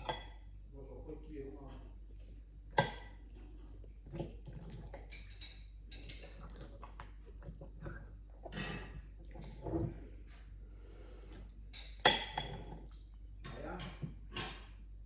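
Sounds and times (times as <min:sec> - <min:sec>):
soft chewing: 0:01.6 - 0:13.3.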